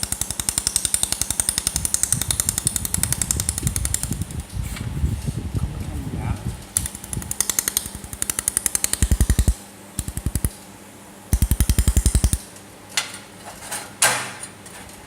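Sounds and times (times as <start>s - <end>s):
laser welder snapping pulses: 0.0s - 4.4s, 6.7s - 10.6s, 11.3s - 12.5s.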